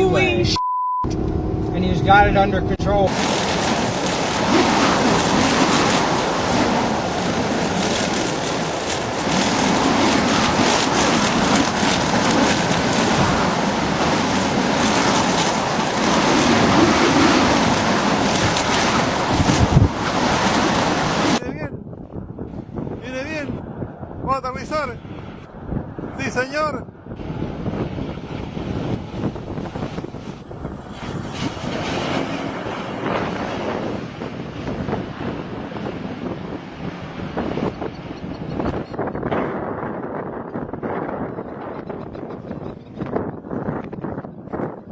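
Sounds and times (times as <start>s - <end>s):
steady rushing noise: 1.2s - 44.9s
light aircraft engine: 27.2s - 39.2s.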